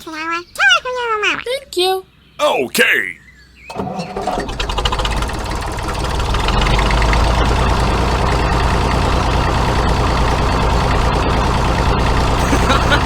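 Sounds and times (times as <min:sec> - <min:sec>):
tractor engine idling: 0:03.7 - 0:13.0.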